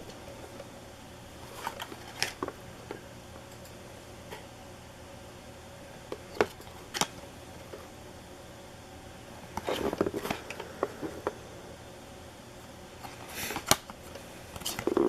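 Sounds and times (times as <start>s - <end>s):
low fan hum: 0.0s - 15.0s
cards rustling and tapping: 9.5s - 11.4s.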